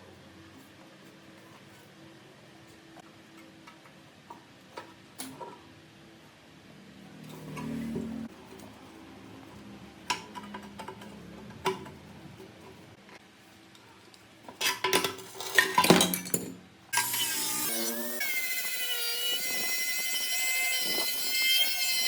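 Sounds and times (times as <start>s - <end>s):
power tool whining: 17.0s - 22.0s.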